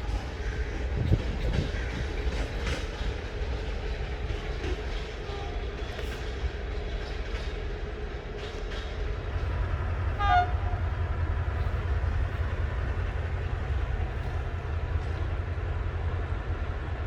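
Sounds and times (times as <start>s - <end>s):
train rumbling along track: 0.0s - 17.0s
train horn toot: 10.1s - 11.0s.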